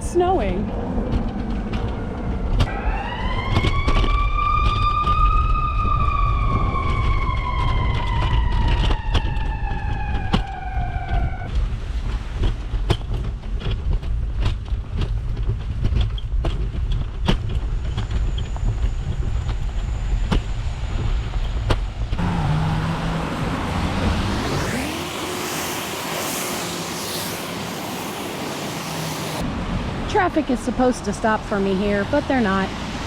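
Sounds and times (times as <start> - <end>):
city traffic rumble: 0.0 - 33.0
emergency vehicle siren: 0.6 - 11.5, 22.1 - 29.5.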